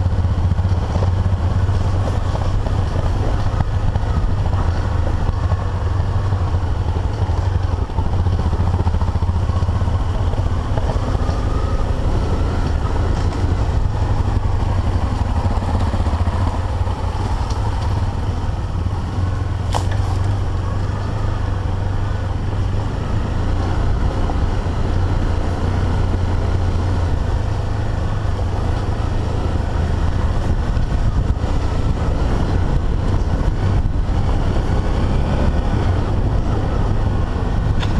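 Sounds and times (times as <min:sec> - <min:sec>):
motorcycle engine running: 0:00.0 - 0:37.9
wind noise on microphone: 0:00.0 - 0:37.9.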